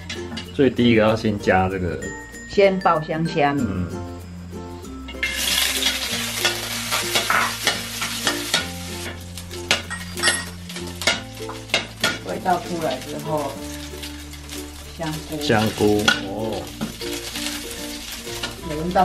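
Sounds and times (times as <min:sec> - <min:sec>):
shrimp sizzling in oil: 0:04.6 - 0:19.0
metal spatula scraping wok: 0:04.8 - 0:19.0.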